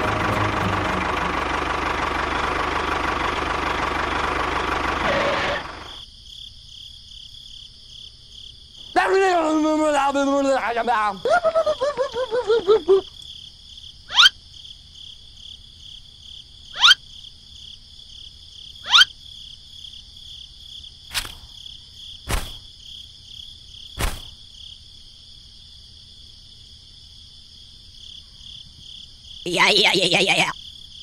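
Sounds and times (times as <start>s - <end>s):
crickets chirring: 4.6s - 31.0s
sharp knocks: 24.0s - 24.4s.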